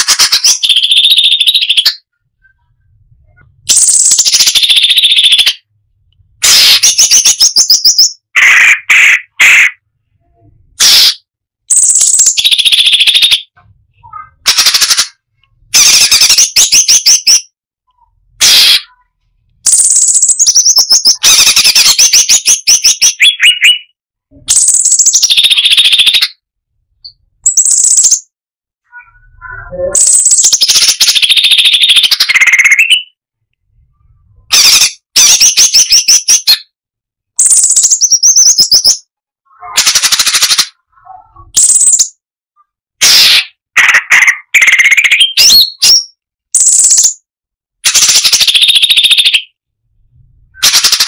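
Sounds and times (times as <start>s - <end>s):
songbird singing rapid trills: 19.7s - 23.8s, 27.5s - 28.3s, 37.4s - 39.0s.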